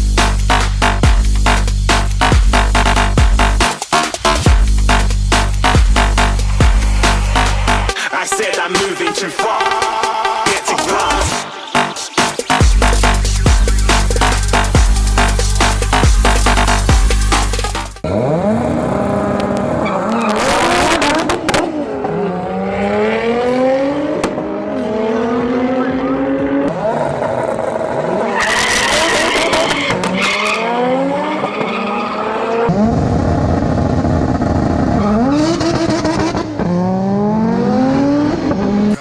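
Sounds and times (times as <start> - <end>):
car engines accelerating hard: 10.9 - 39.0
tyre squeal: 28.1 - 32.7.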